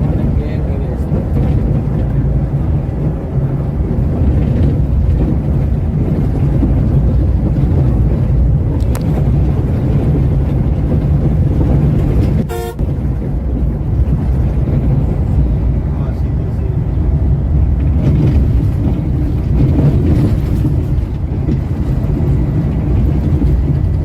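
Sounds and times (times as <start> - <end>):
coach engine and road rumble: 0.0 - 24.0
horn toot: 12.4 - 12.8.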